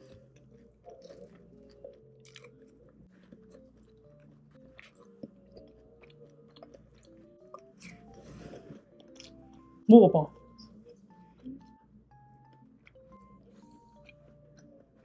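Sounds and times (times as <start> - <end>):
chewing and crunching: 0.0 - 9.8, 12.8 - 15.0
soft background music: 0.0 - 15.0.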